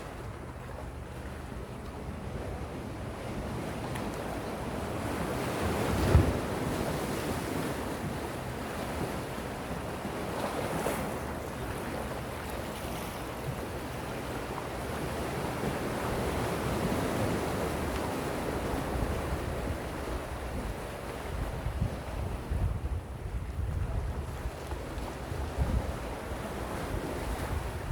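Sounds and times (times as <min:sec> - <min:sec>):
wind buffeting microphone: 0:18.2 - 0:27.9.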